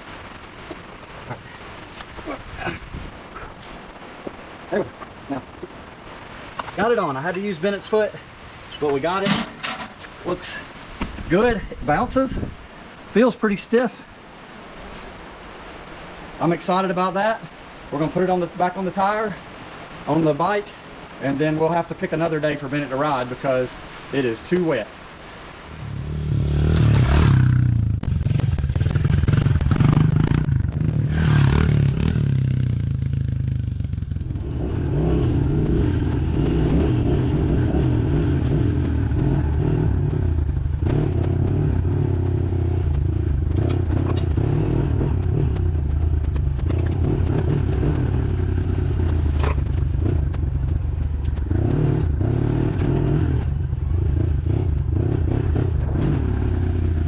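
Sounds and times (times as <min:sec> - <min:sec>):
dirt bike engine running: 0:20.1 - 0:23.7, 0:25.8 - 0:57.0.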